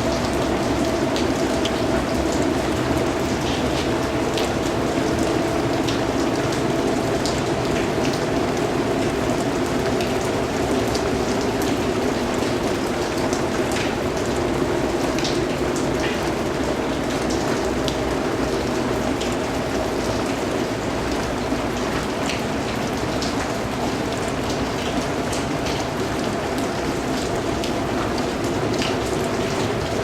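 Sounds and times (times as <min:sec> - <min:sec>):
raindrops ticking on a surface: 0:00.0 - 0:30.0
steady rain: 0:00.0 - 0:30.0.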